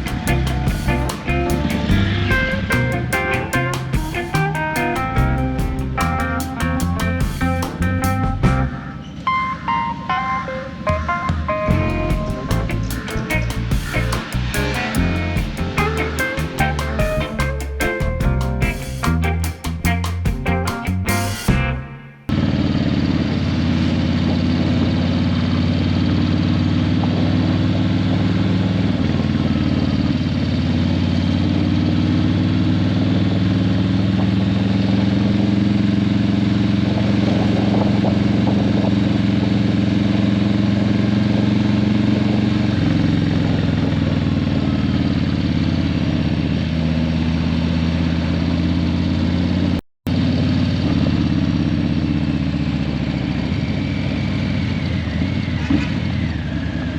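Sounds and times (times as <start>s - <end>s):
motorcycle exhaust rumbling: 0.0s - 9.0s, 22.3s - 56.9s.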